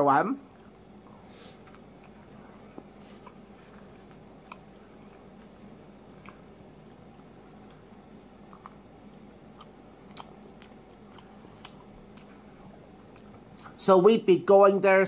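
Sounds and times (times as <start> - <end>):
faint steady hum: 0.0 - 15.0
person chewing sandwich: 0.4 - 13.8
wet mouth clicks: 0.4 - 13.8.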